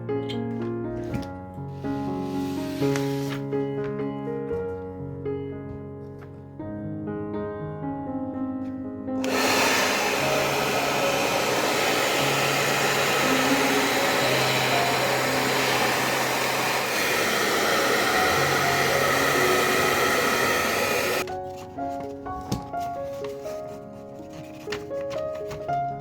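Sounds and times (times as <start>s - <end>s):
hair dryer blowing: 2.0s - 3.4s, 9.2s - 21.3s
background music: 8.6s - 26.0s.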